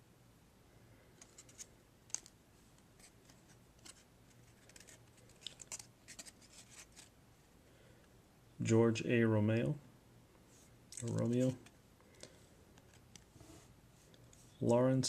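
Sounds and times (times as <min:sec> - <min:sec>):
trading cards clicking and sliding: 0:01.2 - 0:07.1, 0:11.0 - 0:14.5.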